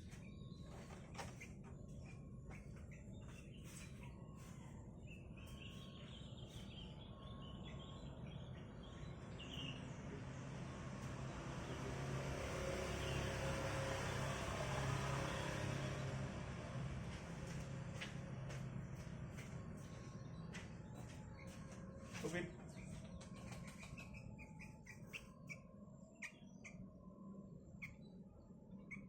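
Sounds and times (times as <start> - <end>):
faint bird chirps: 0.0 - 10.2, 19.0 - 29.0
passing vehicle rumble: 8.2 - 21.4.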